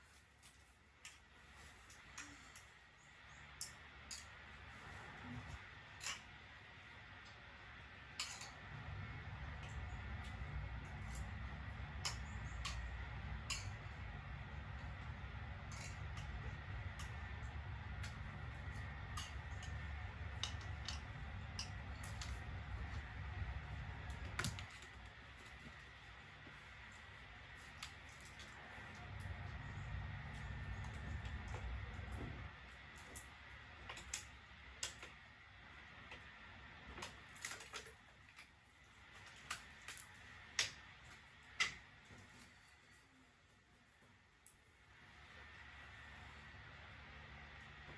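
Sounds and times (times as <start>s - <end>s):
low hum: 3.0s - 34.6s.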